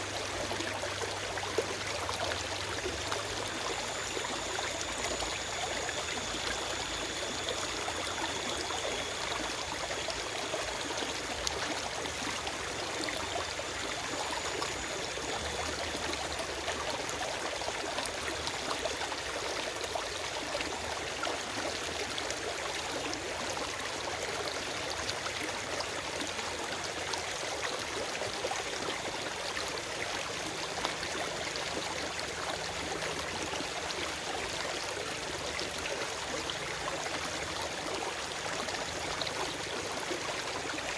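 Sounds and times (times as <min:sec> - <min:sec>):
stream water rushing: 0:00.0 - 0:22.8.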